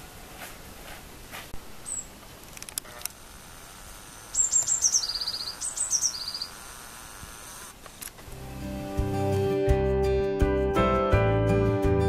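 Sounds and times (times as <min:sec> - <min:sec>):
songbird singing trill: 0:01.8 - 0:02.2, 0:04.3 - 0:06.6.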